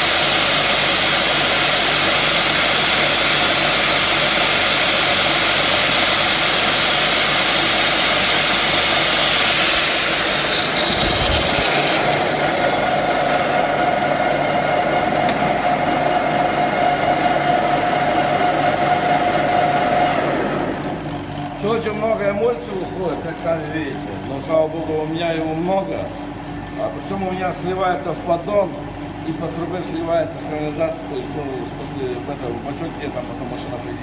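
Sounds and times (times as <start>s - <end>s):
power tools polishing metal: 0.0s - 13.8s
tool whine winding down: 0.0s - 24.5s
steady motor hum: 0.0s - 34.0s.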